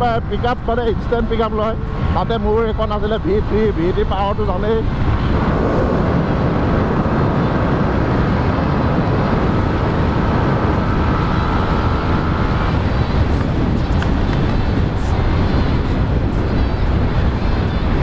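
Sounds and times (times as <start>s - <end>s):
wind rush on microphone: 0.0s - 18.0s
motorcycle engine running: 6.6s - 18.0s.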